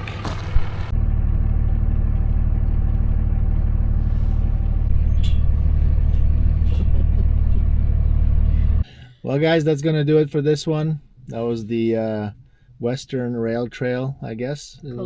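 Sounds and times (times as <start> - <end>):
truck engine and road noise: 0.0 - 8.9.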